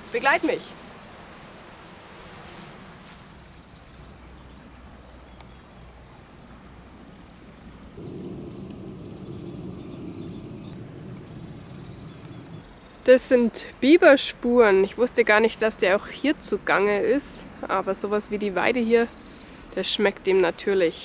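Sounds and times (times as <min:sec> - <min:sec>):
outdoor background noise: 0:00.0 - 0:21.0
small birds chirping: 0:02.1 - 0:13.8, 0:19.0 - 0:21.0
low rushing noise: 0:08.0 - 0:12.6.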